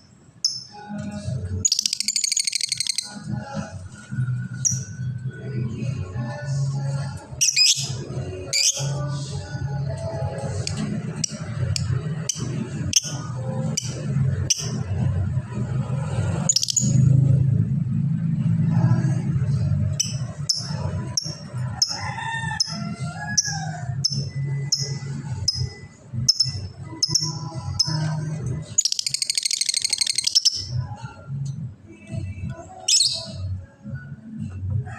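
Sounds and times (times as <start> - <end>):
lovebird chirping: 0.0 - 0.9, 1.6 - 3.2, 7.4 - 9.0, 11.2 - 14.8, 16.4 - 17.0, 20.0 - 21.4, 24.0 - 30.8, 32.8 - 33.4.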